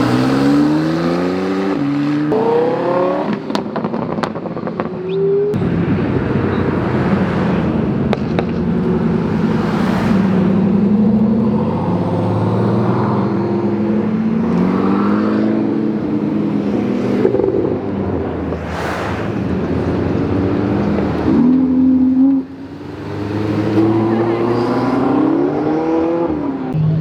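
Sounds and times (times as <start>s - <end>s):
car engines revving: 0.0s - 27.0s
car passing by loudly: 9.0s - 17.4s, 18.1s - 21.5s, 22.6s - 26.7s.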